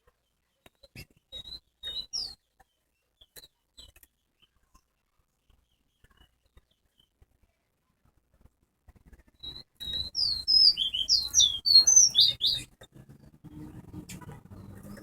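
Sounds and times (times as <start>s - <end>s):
finch chirping and twittering: 1.3s - 2.4s, 9.4s - 13.4s.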